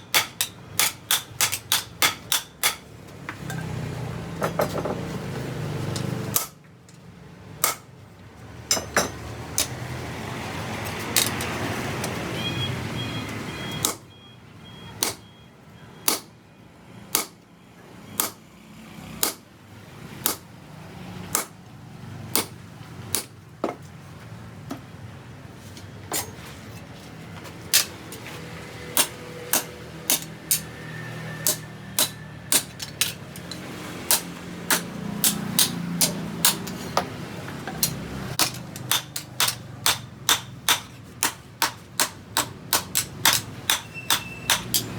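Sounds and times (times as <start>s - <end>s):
hammer striking steel: 0.0s - 2.9s, 16.1s - 16.3s, 17.1s - 17.4s, 18.2s - 18.4s, 21.3s - 21.5s, 27.7s - 28.3s, 28.9s - 30.8s, 31.4s - 44.9s.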